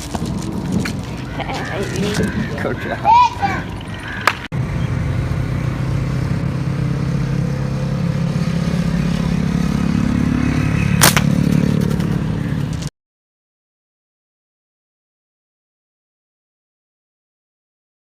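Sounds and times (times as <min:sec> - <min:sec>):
engine running steadily: 0:00.0 - 0:12.9.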